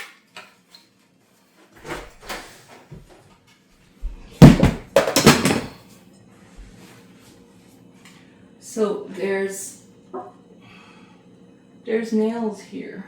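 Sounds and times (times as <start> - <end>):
wooden boards knocking and clattering: 4.1 - 5.7.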